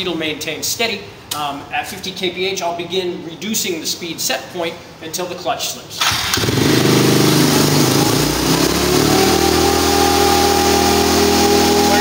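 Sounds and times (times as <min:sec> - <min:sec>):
motorcycle engine revving: 0:06.0 - 0:12.0
steady whine: 0:07.4 - 0:12.0.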